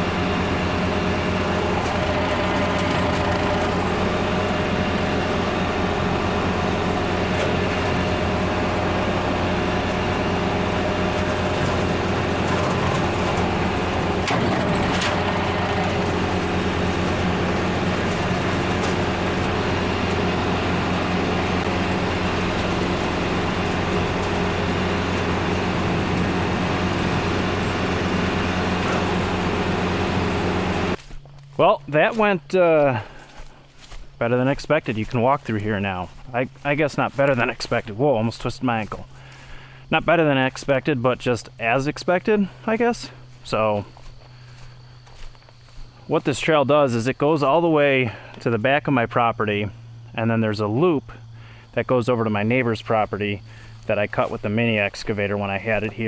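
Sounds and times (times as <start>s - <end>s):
tractor diesel engine running: 0.0s - 56.0s
wood cracking: 1.1s - 31.0s.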